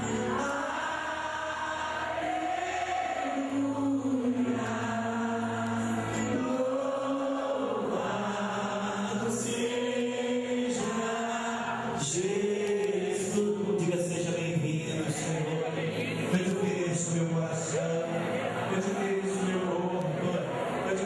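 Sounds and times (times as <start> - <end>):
voices singing a hymn: 0.0 - 21.0.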